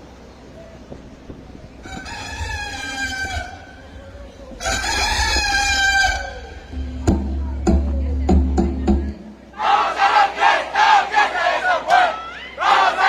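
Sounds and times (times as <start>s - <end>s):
rooster crowing: 1.8s - 4.0s, 4.6s - 7.0s.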